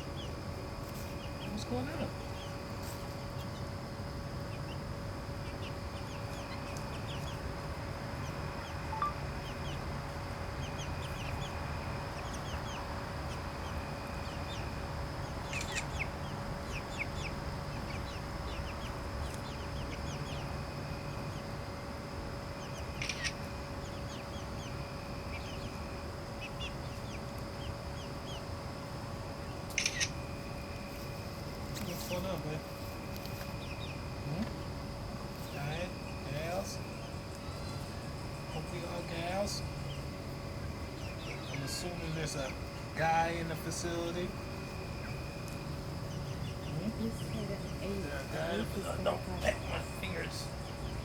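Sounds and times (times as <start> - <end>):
chickens clucking and peeping: 0.0 - 51.0
faint high hum: 0.0 - 51.0
sharp clicks: 23.0 - 23.4, 29.7 - 30.2.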